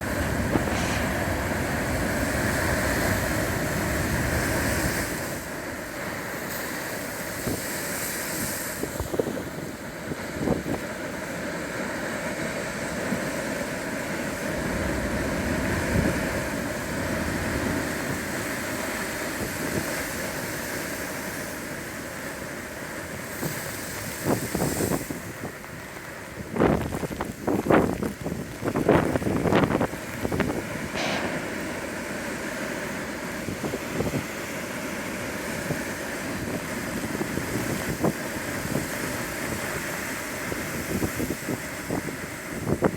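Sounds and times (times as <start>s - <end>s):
wind buffeting microphone: 0.0s - 6.2s, 26.4s - 42.9s
ocean waves breaking: 0.0s - 26.3s, 28.0s - 42.9s.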